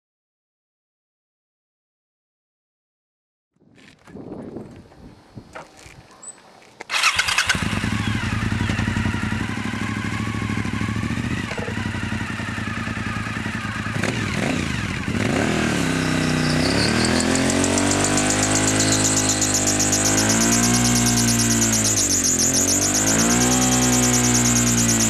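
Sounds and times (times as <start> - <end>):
motorcycle engine throbbing: 6.9 - 25.0.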